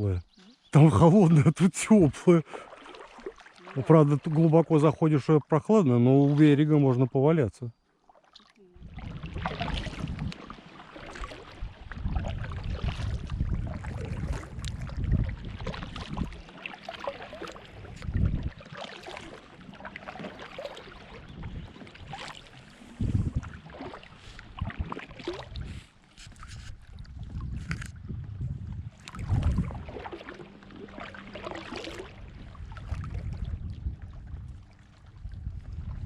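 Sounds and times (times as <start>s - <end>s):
water splashing and sloshing: 0.0s - 36.0s
wind buffeting microphone: 8.8s - 10.4s, 11.0s - 16.5s, 17.7s - 18.7s, 21.1s - 30.2s, 32.1s - 36.0s.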